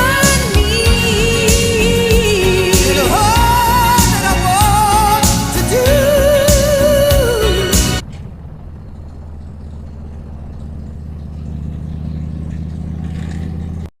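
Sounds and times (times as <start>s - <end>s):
song with singing: 0.0s - 8.0s
vehicle engine idling: 0.0s - 13.9s.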